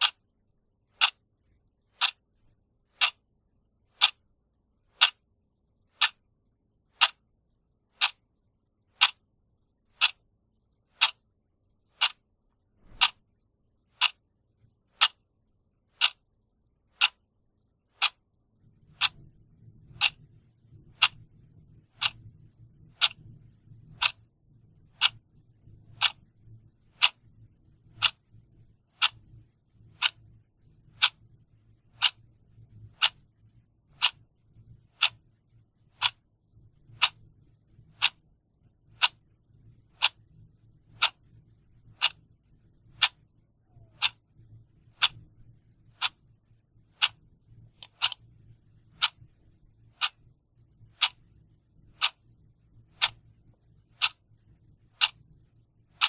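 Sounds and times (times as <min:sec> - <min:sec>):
clock ticking: 0:00.0 - 0:00.2, 0:00.9 - 0:01.2, 0:01.9 - 0:02.3, 0:02.9 - 0:03.2, 0:03.9 - 0:04.2, 0:04.9 - 0:05.2, 0:05.9 - 0:06.2, 0:06.9 - 0:07.2, 0:07.9 - 0:08.3, 0:08.9 - 0:09.3, 0:09.9 - 0:10.2, 0:10.9 - 0:11.2, 0:11.9 - 0:13.2, 0:13.9 - 0:14.2, 0:14.9 - 0:15.3, 0:16.0 - 0:16.2, 0:16.9 - 0:17.3, 0:17.9 - 0:18.3, 0:18.9 - 0:24.3, 0:24.9 - 0:26.3, 0:26.9 - 0:28.3, 0:28.9 - 0:30.3, 0:30.9 - 0:31.3, 0:31.9 - 0:35.3, 0:35.9 - 0:38.3, 0:38.9 - 0:39.3, 0:39.9 - 0:46.2, 0:46.9 - 0:50.3, 0:50.9 - 0:51.3, 0:52.0 - 0:55.3
faint low rumble: 0:00.1 - 0:56.0.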